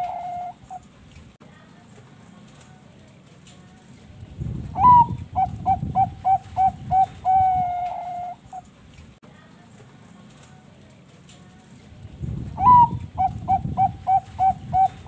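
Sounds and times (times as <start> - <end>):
dove cooing: 0.0 - 0.9, 4.8 - 8.7, 12.6 - 15.0.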